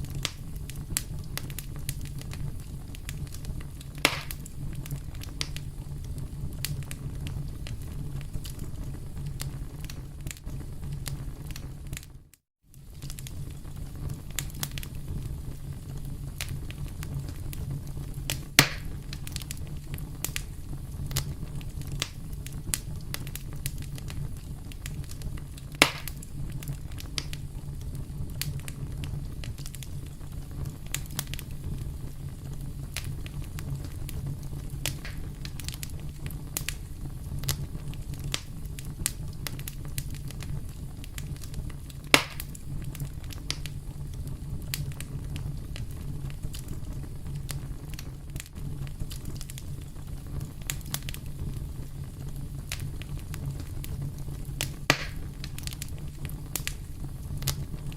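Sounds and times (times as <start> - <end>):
campfire crackling: 0.0 - 57.9
fire pops: 0.0 - 57.9.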